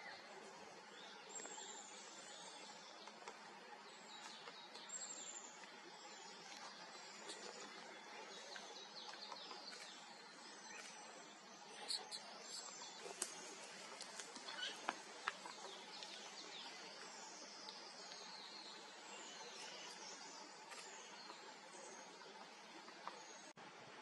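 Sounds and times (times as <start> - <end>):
steady faint hiss: 0.0 - 24.0.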